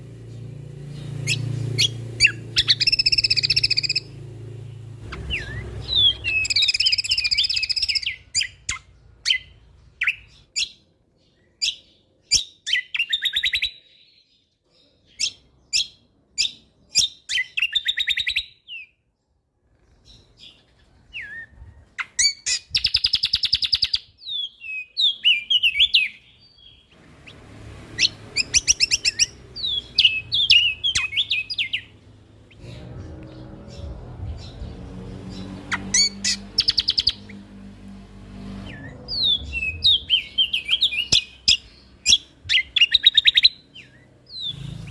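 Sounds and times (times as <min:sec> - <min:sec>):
songbird singing: 0:00.0 - 0:44.9
low background rumble: 0:28.4 - 0:42.8.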